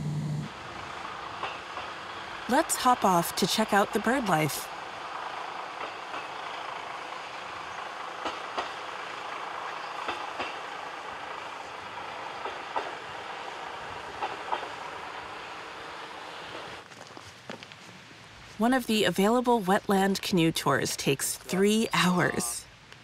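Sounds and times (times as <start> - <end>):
railcar rolling noise: 0.0 - 23.0
wheels clicking over rail joints: 0.5 - 18.0.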